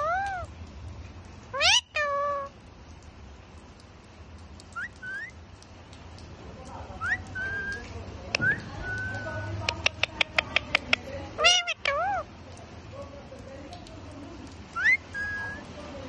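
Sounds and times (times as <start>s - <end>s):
parrot whistling: 4.8s - 5.4s, 7.0s - 7.8s, 14.8s - 15.6s.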